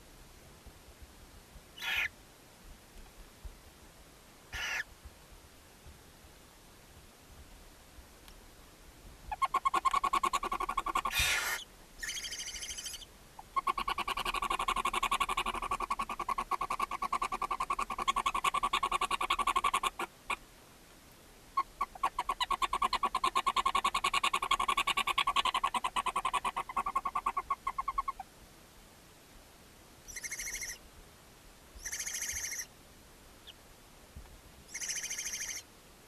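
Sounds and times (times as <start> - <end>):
animal hiss: 11.0 - 11.6.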